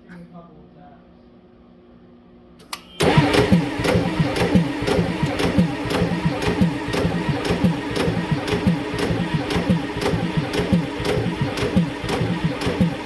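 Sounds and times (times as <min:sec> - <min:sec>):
diesel engine cranking: 0:02.7 - 0:13.0.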